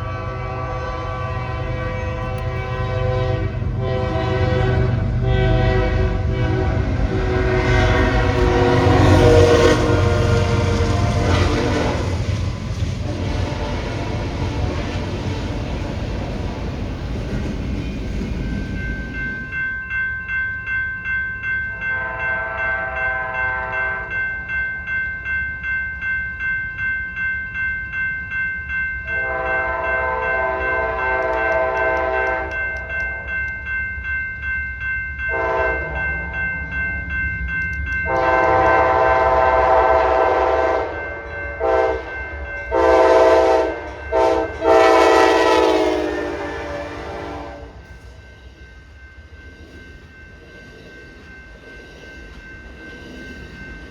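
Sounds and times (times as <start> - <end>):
diesel locomotive horn blasts: 0.0 - 12.4, 13.0 - 15.6, 22.0 - 24.1, 29.2 - 32.6, 35.3 - 36.0, 38.1 - 47.9
train rumble: 0.0 - 20.0, 21.7 - 53.9
crossing bell ringing: 0.0 - 53.9.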